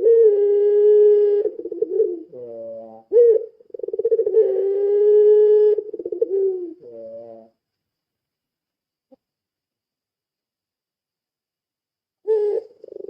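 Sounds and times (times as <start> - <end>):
dove cooing: 0.0 - 7.5, 12.2 - 13.0.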